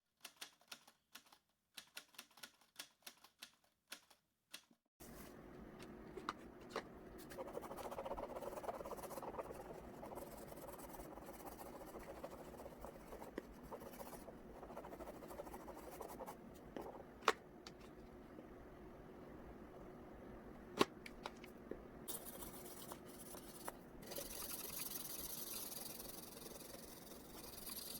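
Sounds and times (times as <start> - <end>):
oil pastel scratching on paper: 7.2 - 17.0, 22.1 - 27.9.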